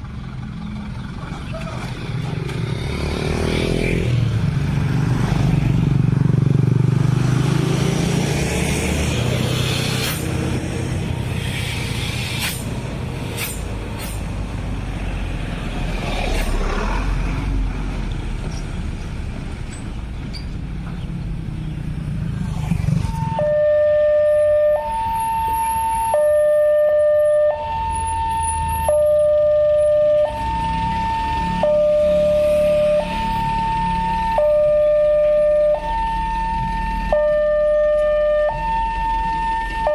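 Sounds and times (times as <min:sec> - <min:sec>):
car engines passing: 0:00.0 - 0:39.9
motorcycle passing: 0:02.0 - 0:12.1, 0:21.4 - 0:23.6, 0:30.8 - 0:34.2.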